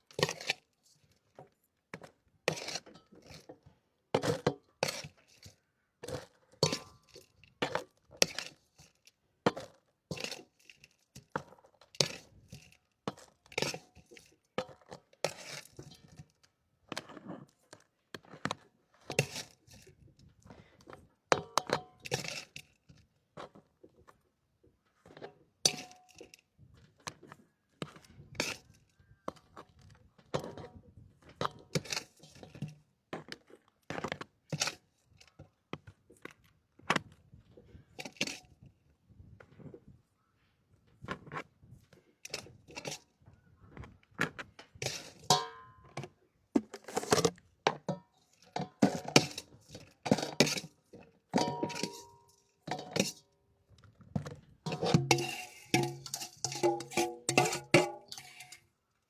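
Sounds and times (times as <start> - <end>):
dishes and utensils clinking: 45.3 - 45.7, 51.4 - 53.2, 54.7 - 58.6.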